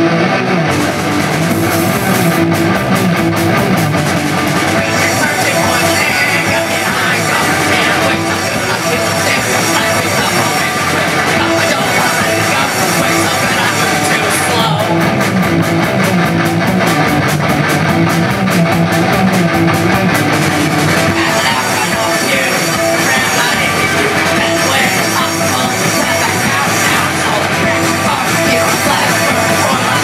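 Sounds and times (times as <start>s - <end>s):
loud rock music: 0.0s - 30.0s
fast drum beat: 0.7s - 30.0s.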